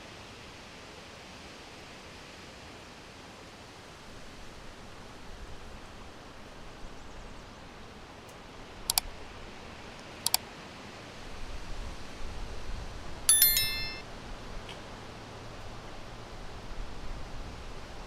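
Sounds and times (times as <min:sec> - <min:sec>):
wind: 0:04.0 - 0:18.0
high bright ringing tones: 0:13.3 - 0:14.0.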